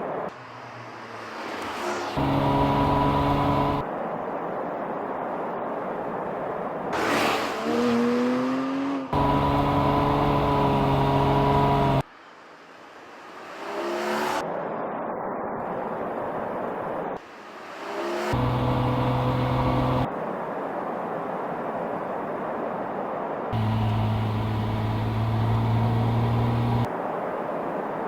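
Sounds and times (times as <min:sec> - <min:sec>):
car passing by: 0:00.0 - 0:03.9, 0:06.9 - 0:09.6, 0:11.1 - 0:14.7, 0:17.2 - 0:20.1
car engine revving: 0:01.6 - 0:03.8, 0:07.0 - 0:12.0, 0:18.3 - 0:20.1, 0:23.6 - 0:26.9.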